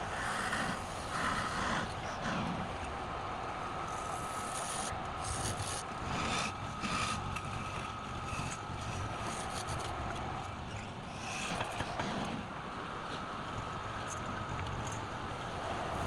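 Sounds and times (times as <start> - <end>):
faint steady whine: 0.0 - 16.0
tool scraping spinning wood: 3.9 - 10.0.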